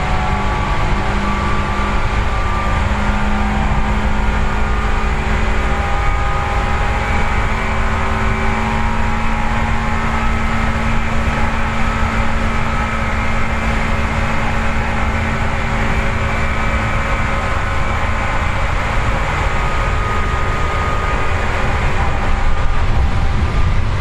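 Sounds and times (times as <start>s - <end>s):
traction motor whine: 0.0s - 24.0s
train wheels rumbling on rail: 0.0s - 24.0s.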